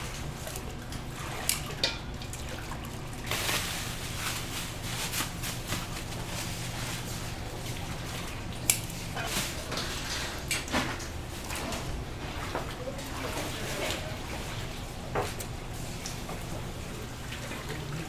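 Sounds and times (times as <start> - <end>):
liquid trickling and splashing: 0.0 - 5.1.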